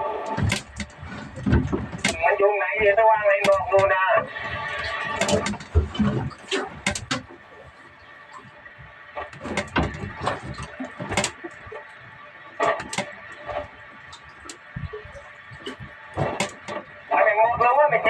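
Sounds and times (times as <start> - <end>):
knocks and clatter of gear: 0.4 - 2.2.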